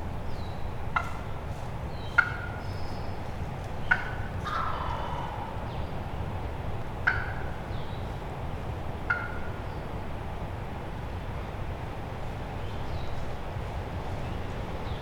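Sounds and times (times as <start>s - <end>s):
wind rumbling on microphone: 0.0s - 15.0s
wild turkey calls: 0.4s - 6.3s, 7.0s - 8.2s, 9.0s - 9.8s.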